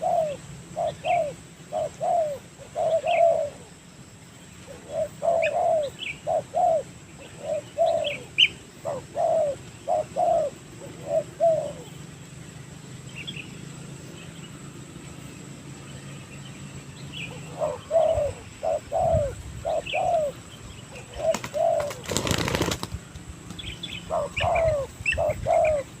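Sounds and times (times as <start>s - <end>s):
doves cooing: 0.0s - 3.8s, 4.5s - 12.2s, 17.1s - 26.0s
small birds chirping faintly: 0.0s - 26.0s
wings flapping: 21.2s - 23.7s.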